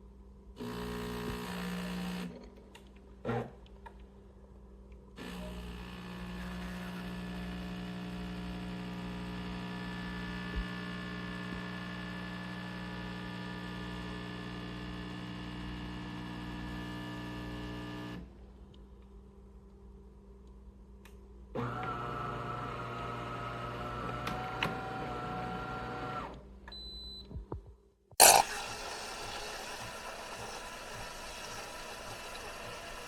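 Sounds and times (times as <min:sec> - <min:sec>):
espresso machine pump buzzing: 0:00.6 - 0:02.3, 0:05.2 - 0:18.2, 0:28.2 - 0:33.0.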